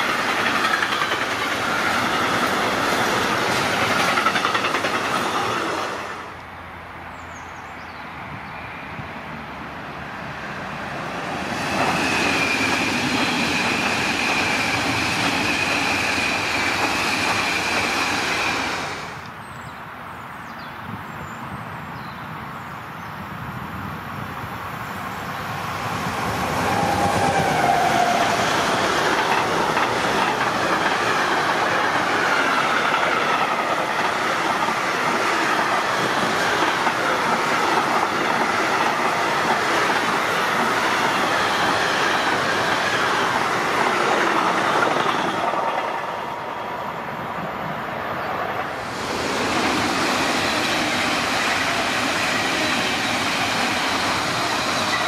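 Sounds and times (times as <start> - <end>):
freight train wheels clacking: 0.0 - 6.3, 11.3 - 19.3, 26.0 - 46.4, 48.6 - 55.0
electric train passing: 0.0 - 7.4, 8.0 - 19.4, 24.4 - 55.0.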